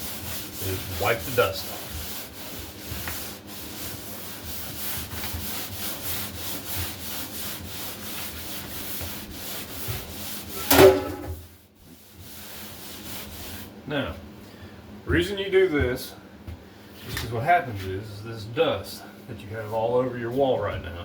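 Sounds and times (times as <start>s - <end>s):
damp rag rubbing drywall: 0.0s - 14.1s.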